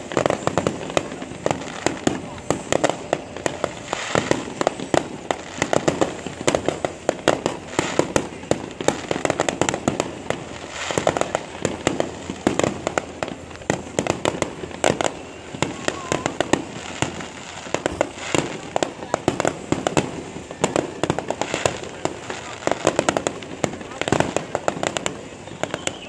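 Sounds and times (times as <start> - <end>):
crackling pops: 0.0 - 26.0
firework shells bursting: 0.0 - 26.0.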